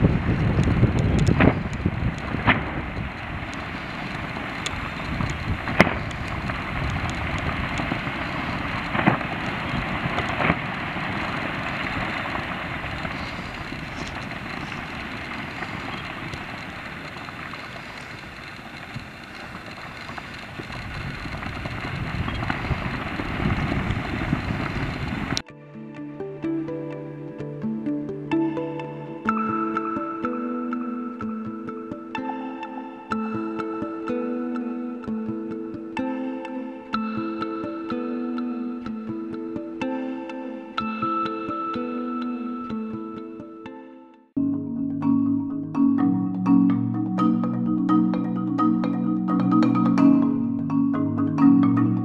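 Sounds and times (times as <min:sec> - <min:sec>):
sharp cracks: 0:00.0 - 0:25.5
volcano eruption roar: 0:00.0 - 0:25.5.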